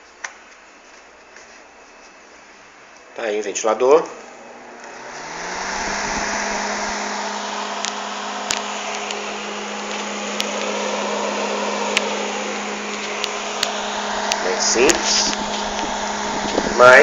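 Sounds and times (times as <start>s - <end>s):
fan motor hum: 0.0s - 17.0s
rush of air: 5.0s - 9.6s, 11.1s - 17.0s.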